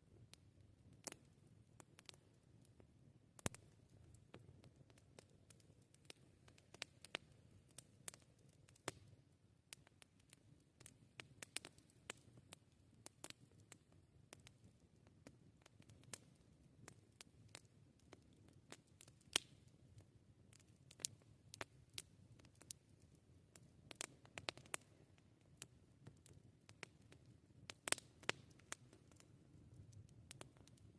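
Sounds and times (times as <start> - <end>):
wood fire crackling: 0.0 - 30.9.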